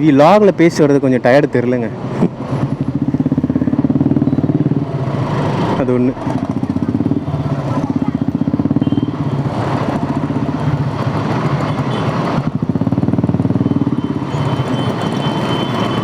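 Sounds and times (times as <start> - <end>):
motorcycle engine at low revs: 2.2 - 14.8.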